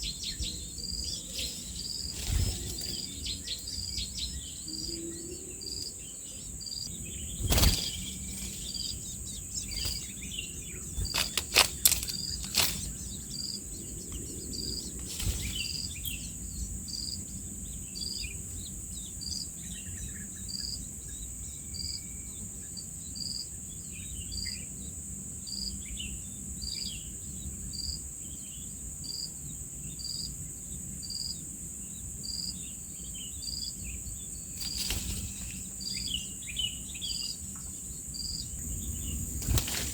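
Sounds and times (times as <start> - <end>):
short high insect chirp: 0.0 - 17.2, 33.1 - 39.9
faint bird chirps: 0.0 - 24.9, 31.9 - 39.9
insects droning: 0.0 - 39.9.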